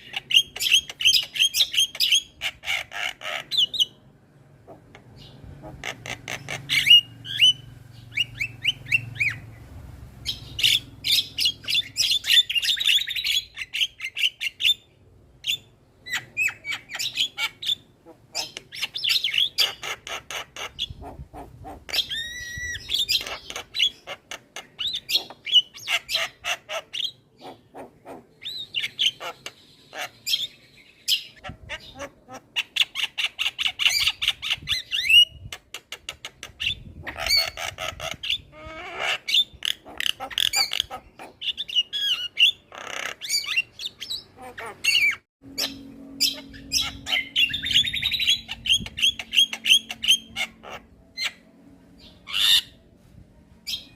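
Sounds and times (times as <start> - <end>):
myna chattering and calling: 0.0 - 4.0, 4.6 - 7.6, 36.0 - 51.4.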